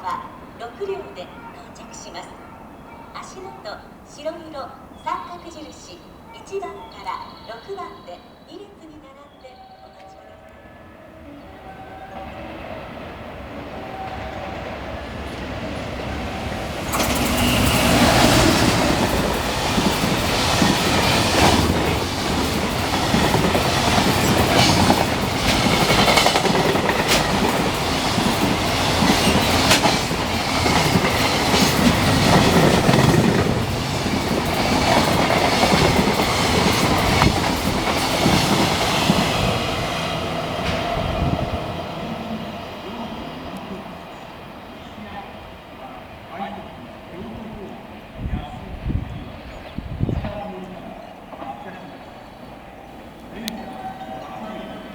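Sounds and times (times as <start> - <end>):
freight train passing: 0.0 - 54.9
wagons clattering over rail joints: 16.3 - 39.7.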